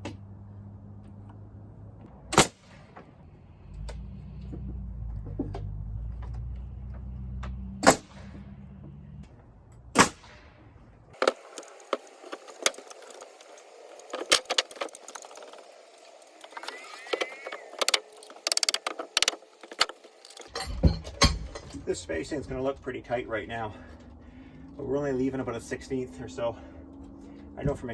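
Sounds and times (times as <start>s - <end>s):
knocks taps and metallic clinks: 17.2s - 22.0s
low steady hum: 20.2s - 27.9s.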